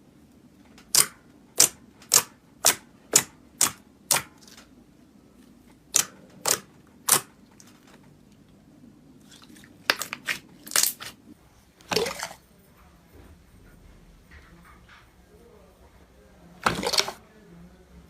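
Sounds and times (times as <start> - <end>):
crackly slime squelch: 0.8 - 12.4.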